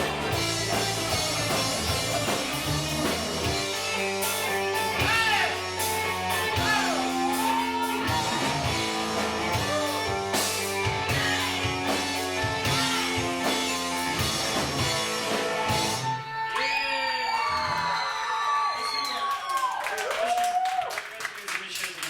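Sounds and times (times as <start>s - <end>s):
drum kit beat: 0.0s - 16.2s
live rock band: 0.0s - 16.3s.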